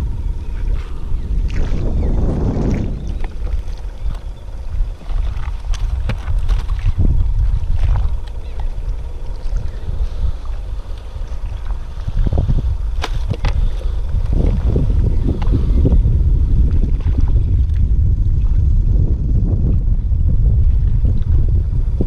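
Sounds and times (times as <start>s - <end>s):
wind buffeting microphone: 0.0s - 22.0s
water slapping against hull: 0.4s - 21.5s.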